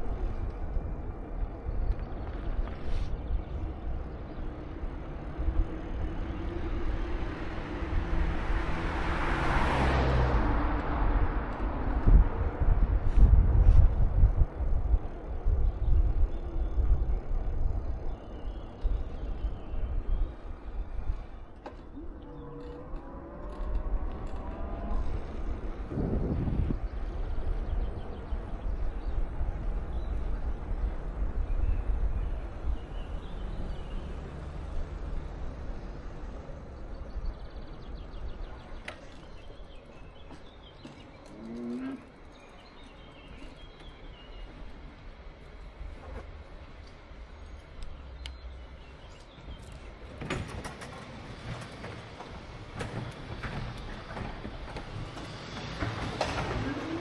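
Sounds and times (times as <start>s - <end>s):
wind on microphone: 0.0s - 34.2s
low road rumble: 0.0s - 57.0s
vehicle passing: 4.8s - 13.8s, 21.8s - 42.3s.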